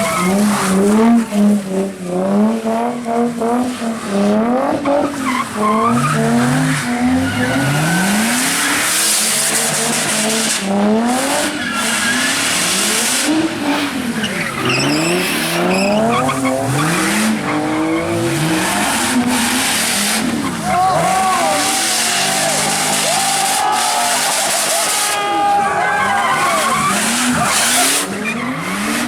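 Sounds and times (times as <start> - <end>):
car engine revving: 0.0 - 29.0
spinning tyres hissing: 4.9 - 25.2.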